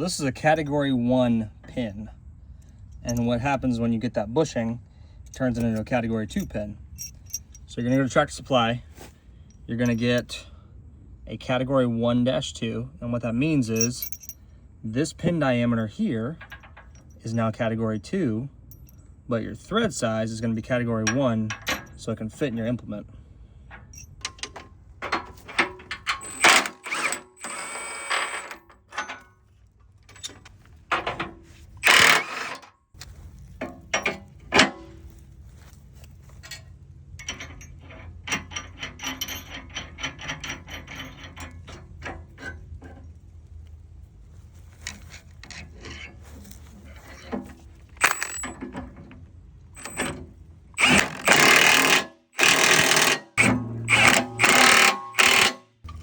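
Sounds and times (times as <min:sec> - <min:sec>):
metal clinks and knocks: 0:02.7 - 0:03.6, 0:05.3 - 0:08.2, 0:09.4 - 0:10.4, 0:13.6 - 0:14.4, 0:16.3 - 0:17.7, 0:18.6 - 0:19.1, 0:21.0 - 0:22.7, 0:23.6 - 0:27.6, 0:28.3 - 0:32.3, 0:33.0 - 0:43.3, 0:44.8 - 0:56.0.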